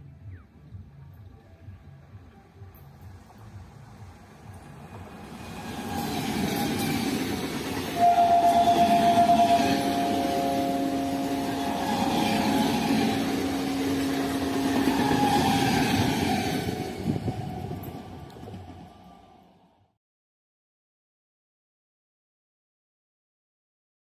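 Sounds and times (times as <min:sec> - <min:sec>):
train passing rumble: 0:00.9 - 0:19.9
train horn: 0:07.9 - 0:16.4.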